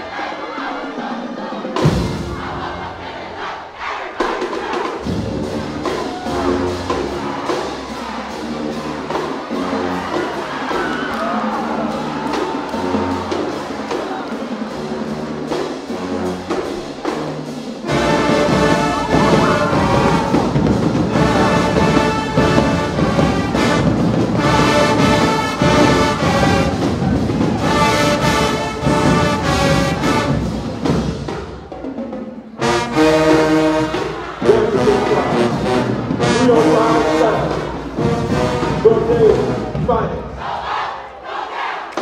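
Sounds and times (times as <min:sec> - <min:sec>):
marching band playing: 0:00.0 - 0:42.0.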